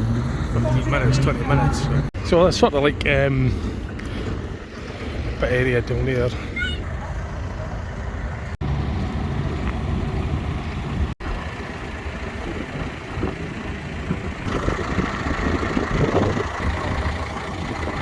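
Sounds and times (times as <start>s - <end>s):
engine idling: 6.9s - 18.0s.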